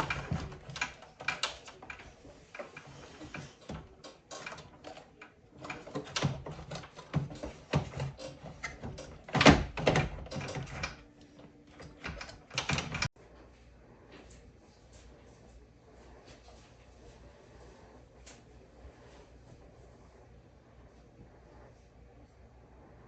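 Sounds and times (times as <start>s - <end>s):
parts clicking and scraping: 0.0s - 13.1s.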